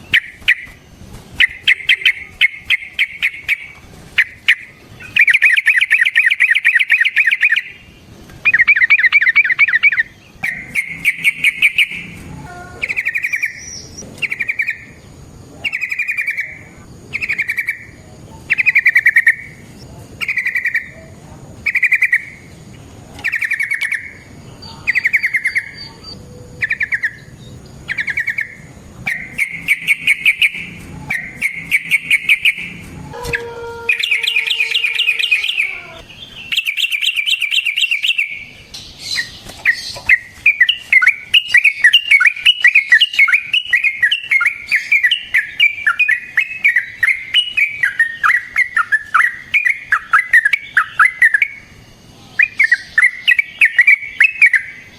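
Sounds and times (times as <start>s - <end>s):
lower falling bird call: 0.0s - 22.6s, 23.2s - 54.8s.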